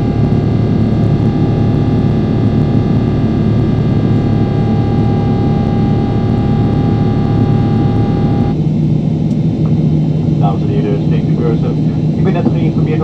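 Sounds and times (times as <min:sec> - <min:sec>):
steady tones: 0:00.0 - 0:08.6
jet engine and airflow noise: 0:00.0 - 0:13.0
low cabin hum: 0:00.0 - 0:13.0.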